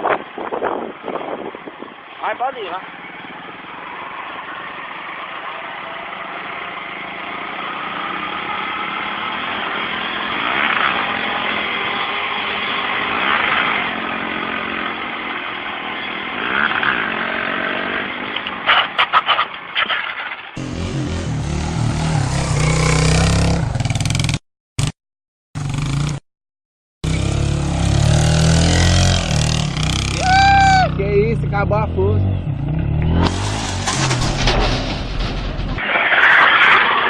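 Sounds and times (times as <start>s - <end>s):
motorcycle engine revving: 16.1s - 18.4s, 20.6s - 24.9s, 25.6s - 26.2s, 27.0s - 35.8s.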